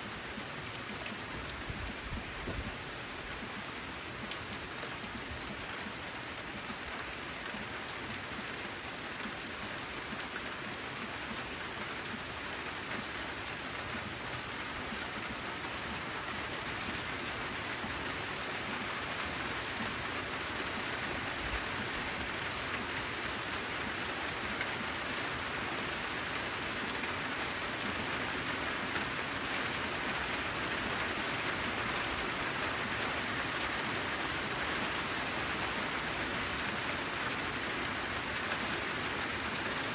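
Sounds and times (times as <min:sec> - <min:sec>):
rain on a metal roof: 0:00.0 - 0:39.9.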